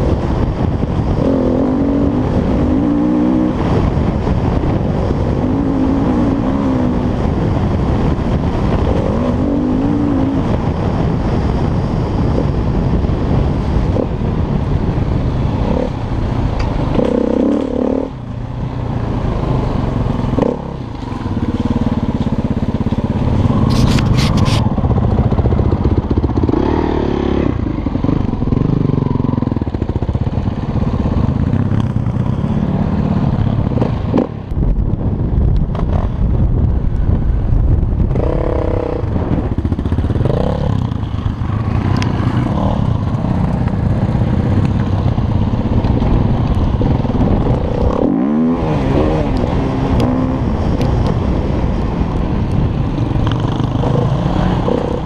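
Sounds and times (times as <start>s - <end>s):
dirt bike engine revving: 16.9s - 18.2s, 38.1s - 44.6s, 46.8s - 50.8s, 53.2s - 55.0s.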